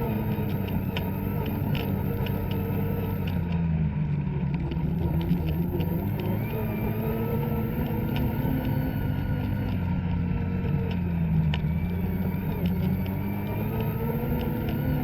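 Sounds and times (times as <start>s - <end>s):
snowmobile engine running: 0.0s - 15.0s
light clicks: 4.6s - 15.0s.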